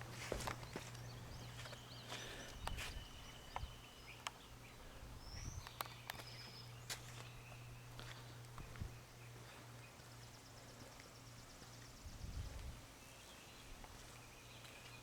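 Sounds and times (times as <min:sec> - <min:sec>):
birds chirping: 0:00.0 - 0:15.0
steady low hum: 0:00.0 - 0:15.0
sharp clicks: 0:05.6 - 0:06.4.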